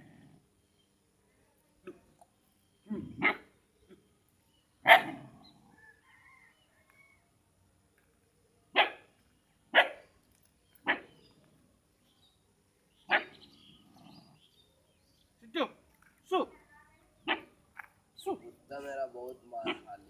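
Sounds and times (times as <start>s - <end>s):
dog barking: 3.2s - 3.4s, 4.8s - 5.3s, 8.8s - 9.1s, 9.7s - 10.0s, 10.8s - 11.1s, 13.1s - 13.4s, 17.2s - 17.5s, 19.6s - 20.0s.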